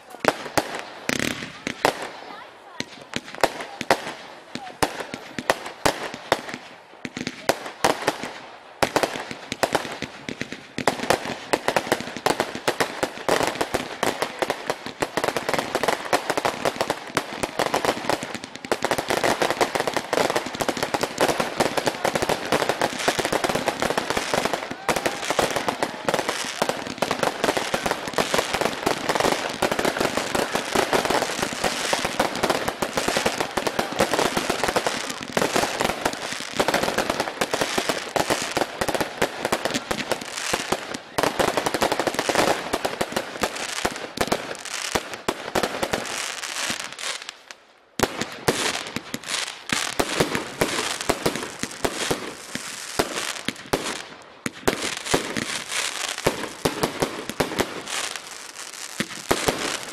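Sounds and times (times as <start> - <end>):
fireworks crackling and bursting: 0.0 - 59.9.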